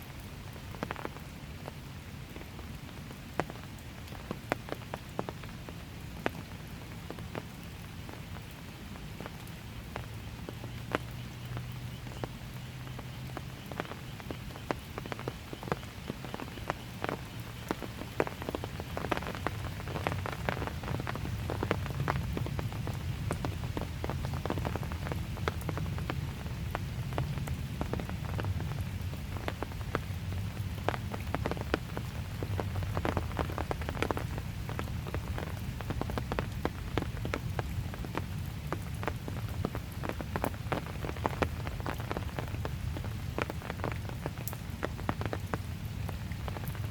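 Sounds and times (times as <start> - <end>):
gentle rain: 0.0 - 46.9.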